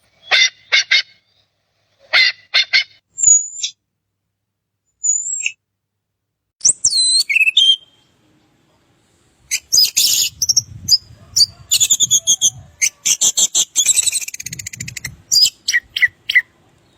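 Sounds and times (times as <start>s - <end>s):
bird trill: 2.2s - 3.8s, 5.0s - 5.6s, 6.6s - 8.1s, 9.5s - 16.9s
birds chirping and whistling: 3.2s - 3.8s, 5.0s - 5.6s, 6.6s - 8.0s, 9.5s - 16.9s.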